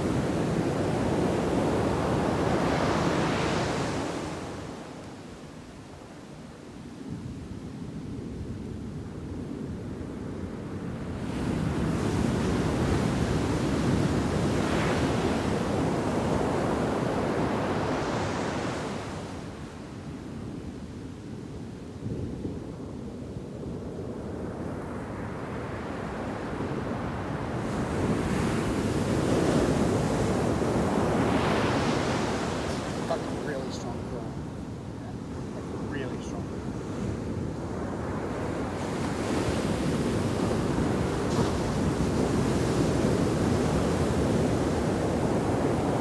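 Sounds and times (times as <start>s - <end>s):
ocean surf crashing: 0.0s - 5.0s, 25.9s - 46.0s.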